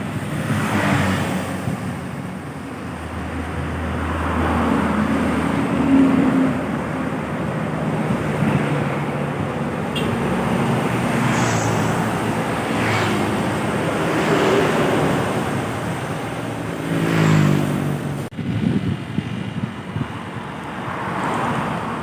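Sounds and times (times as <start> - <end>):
trucks and buses passing: 0.0 - 22.0.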